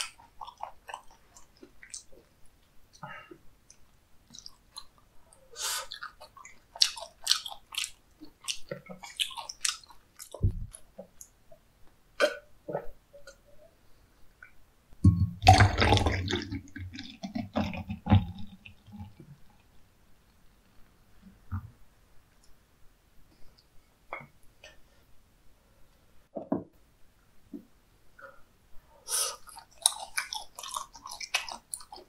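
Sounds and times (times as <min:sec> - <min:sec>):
chewing raw cuttlefish: 0:00.0 - 0:02.6, 0:05.7 - 0:11.4, 0:29.3 - 0:32.0.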